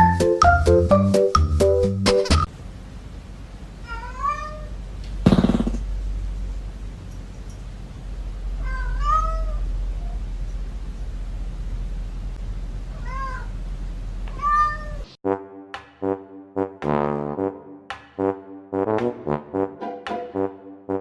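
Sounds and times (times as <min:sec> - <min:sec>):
cat meowing: 0:03.8 - 0:04.8, 0:08.6 - 0:10.2, 0:12.9 - 0:13.6, 0:14.3 - 0:15.1.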